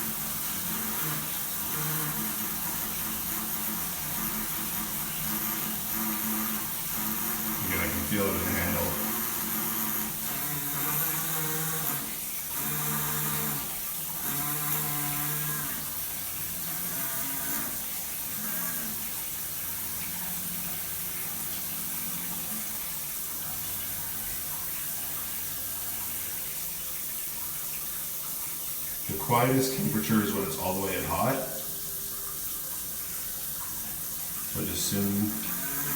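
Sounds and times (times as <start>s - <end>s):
low moaning valve hum: 0.0s - 12.0s, 29.1s - 35.9s
water running through shower: 0.0s - 35.9s.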